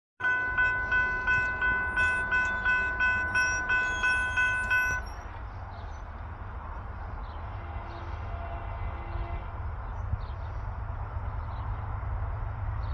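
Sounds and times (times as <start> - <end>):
railroad bell ringing: 0.2 - 5.4.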